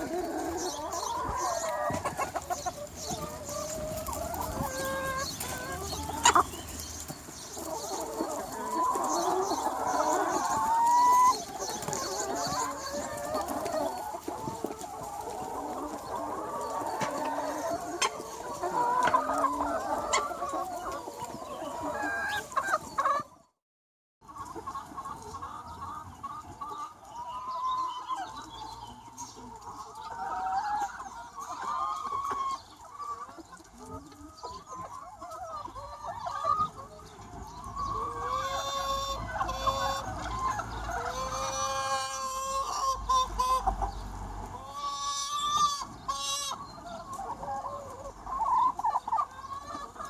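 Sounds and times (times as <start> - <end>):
chickens clucking and calling: 0.0 - 23.6, 24.2 - 50.0.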